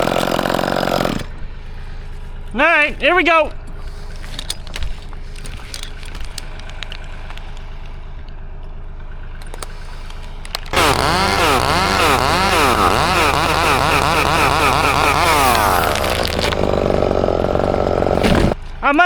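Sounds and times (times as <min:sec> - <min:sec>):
chainsaw revving: 0:00.0 - 0:02.6, 0:09.6 - 0:18.6
engine idling: 0:00.0 - 0:19.0.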